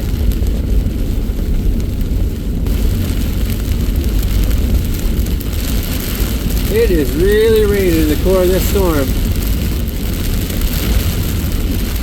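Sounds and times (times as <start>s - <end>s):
heavy rain hissing on truck: 0.0s - 12.0s
truck road and engine noise: 0.1s - 12.0s.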